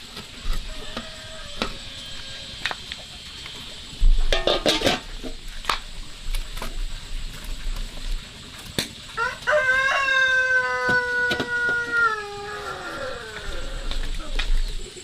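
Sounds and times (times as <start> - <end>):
rooster crowing: 0.5 - 2.7, 9.2 - 14.4.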